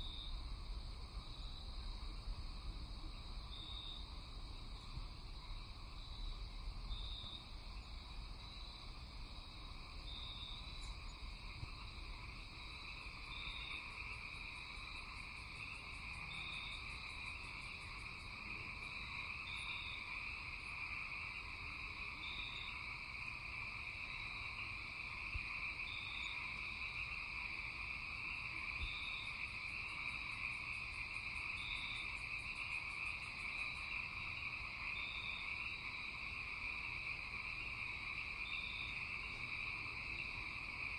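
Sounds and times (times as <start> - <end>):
insects trilling drone: 0.0 - 40.9
frogs calling: 10.1 - 40.9.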